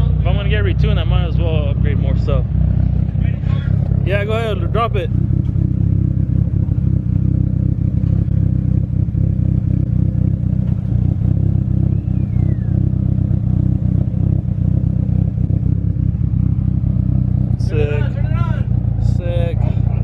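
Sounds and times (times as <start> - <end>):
car engine idling unevenly: 0.0 - 20.0.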